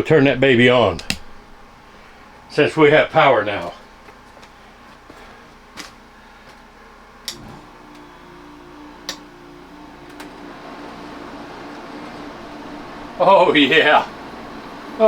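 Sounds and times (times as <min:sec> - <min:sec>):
air conditioner thump and hum: 0:00.0 - 0:15.0
control clicks: 0:00.8 - 0:01.4, 0:07.2 - 0:08.1.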